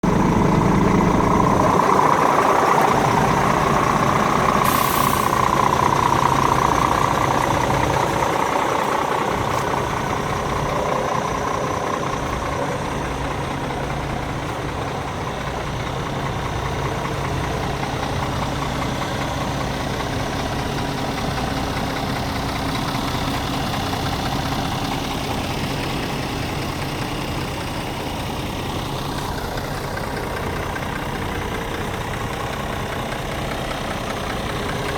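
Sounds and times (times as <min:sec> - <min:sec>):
diesel truck engine idling: 0:00.0 - 0:34.9
short hiss: 0:04.6 - 0:05.5.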